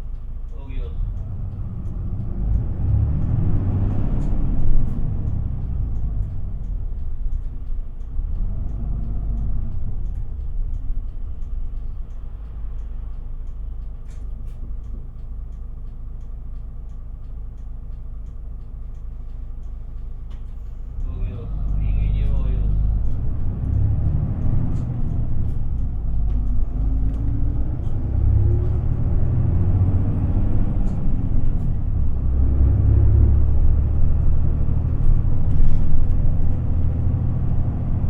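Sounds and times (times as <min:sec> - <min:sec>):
engine and road rumble: 0:00.0 - 0:38.0
bus diesel engine revving: 0:00.6 - 0:13.1, 0:20.6 - 0:38.0.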